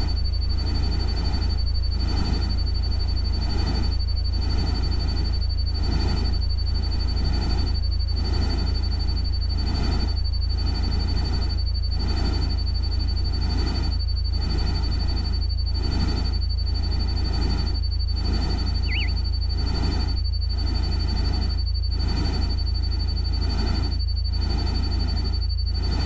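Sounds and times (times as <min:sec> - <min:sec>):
thin high tone: 0:18.8 - 0:19.2.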